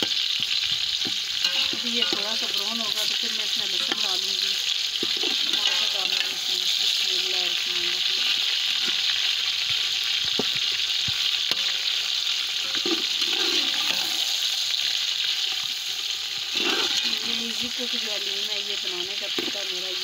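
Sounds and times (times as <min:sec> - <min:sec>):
chicken sizzling in hot oil: 0:00.0 - 0:20.0
spoon clinking against pot: 0:01.4 - 0:02.6.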